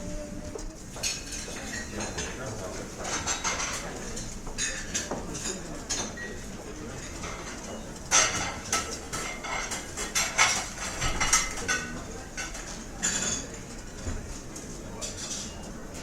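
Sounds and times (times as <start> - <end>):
cutlery and dishes clinking: 7.0 - 13.6, 15.0 - 15.7.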